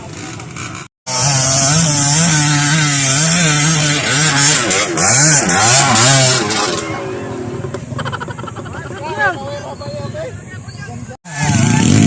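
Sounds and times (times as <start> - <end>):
motorcycle engine revving: 0.0 - 8.0, 11.3 - 12.0.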